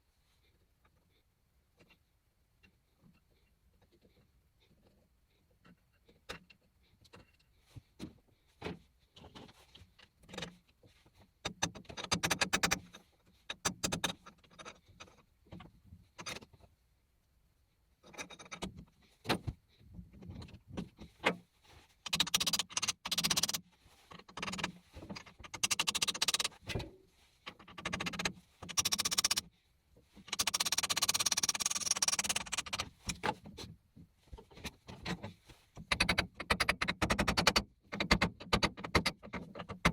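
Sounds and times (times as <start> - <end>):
scraping or brushing noise: 30.2 - 33.3.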